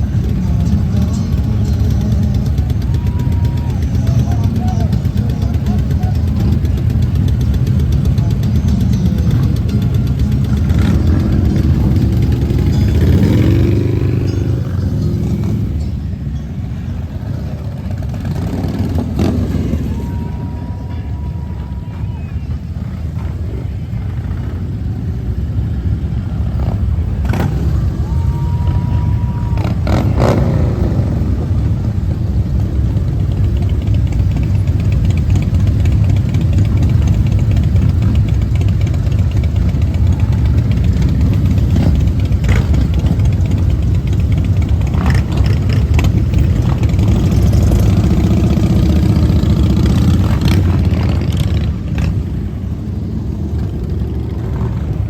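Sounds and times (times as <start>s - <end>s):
motorcycle engines rumbling: 0.0s - 55.0s
steady high tone: 8.0s - 23.0s.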